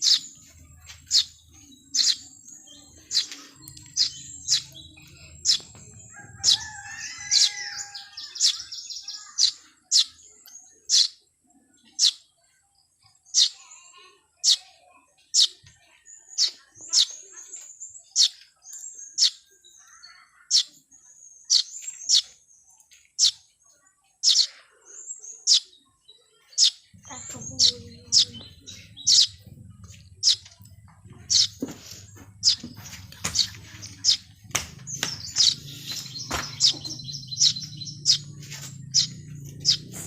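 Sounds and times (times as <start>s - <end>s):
rapid bird twitter: 0.0s - 11.2s, 11.8s - 12.4s, 14.4s - 22.5s, 23.1s - 23.5s, 24.2s - 30.6s, 31.2s - 40.0s
small birds chirping: 0.0s - 40.0s.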